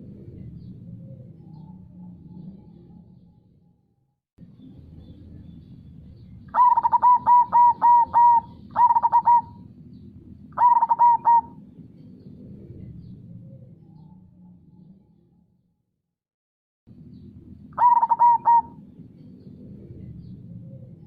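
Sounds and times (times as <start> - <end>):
dove cooing: 6.5 - 9.8, 10.4 - 14.2, 17.8 - 21.0.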